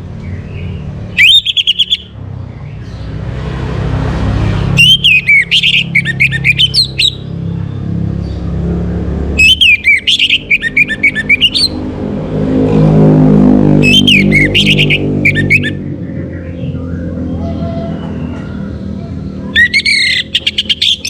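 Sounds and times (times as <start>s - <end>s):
bird whistled song: 0.5s - 2.2s, 4.8s - 7.3s, 9.4s - 11.8s, 13.8s - 17.0s, 19.5s - 21.0s.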